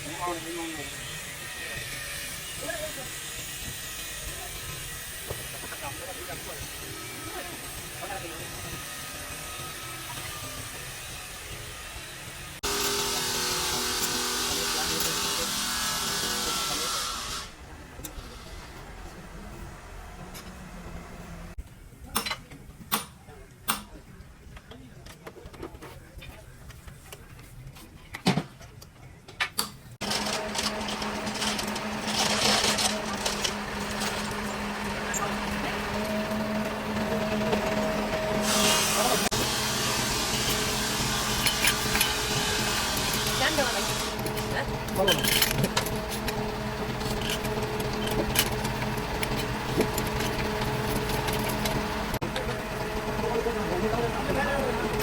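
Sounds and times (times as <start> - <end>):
motor-driven machine humming: 30.0 - 55.0
scattered knocks and clicks: 44.1 - 55.0.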